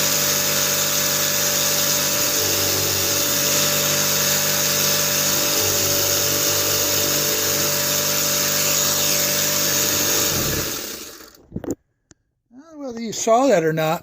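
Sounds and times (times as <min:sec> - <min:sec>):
jigsaw running: 0:00.0 - 0:11.5.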